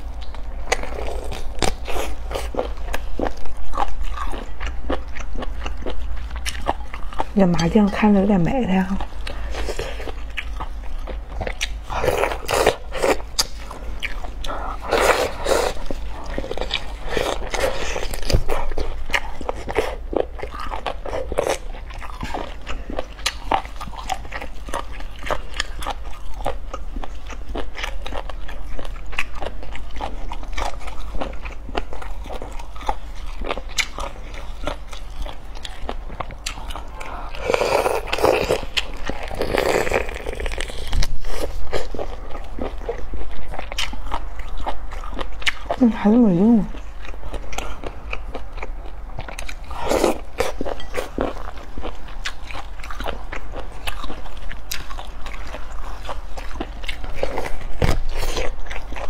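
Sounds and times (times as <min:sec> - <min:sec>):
low steady hum: 0:00.0 - 0:59.0
person biting and chewing: 0:00.2 - 0:07.2, 0:09.2 - 0:45.8, 0:47.0 - 0:59.0.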